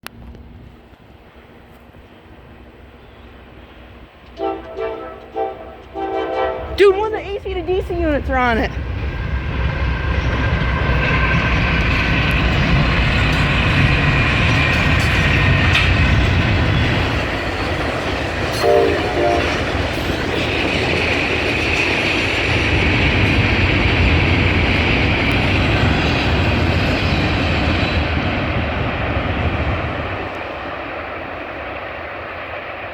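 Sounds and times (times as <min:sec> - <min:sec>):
locomotive engine rumble: 0:00.0 - 0:32.4
train wheels rolling on rails: 0:00.0 - 0:32.9
short horn tones: 0:04.4 - 0:06.8.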